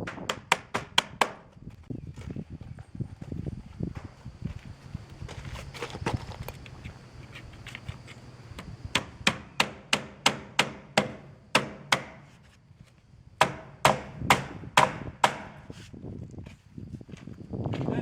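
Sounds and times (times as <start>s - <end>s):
hammer driving nails: 0.0s - 1.5s, 8.9s - 12.3s, 13.4s - 15.6s.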